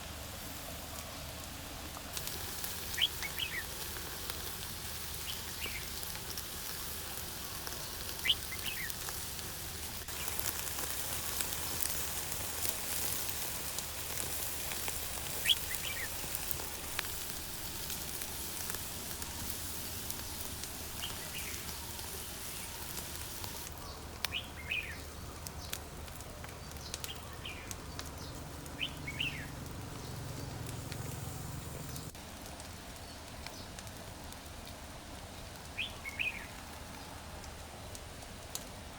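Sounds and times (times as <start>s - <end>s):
steady hiss: 0.0s - 38.9s
small birds chirping: 2.2s - 3.8s, 4.8s - 9.2s, 10.1s - 13.2s, 14.0s - 25.8s, 26.4s - 31.0s, 35.8s - 36.6s.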